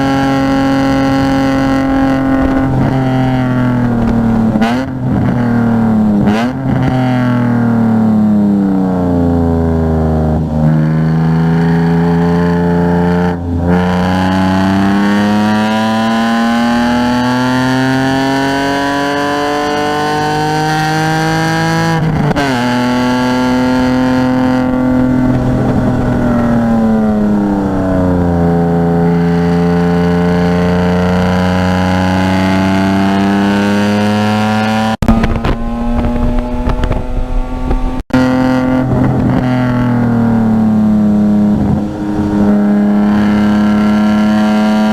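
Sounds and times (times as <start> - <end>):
car engine driven hard: 0.0 - 44.9.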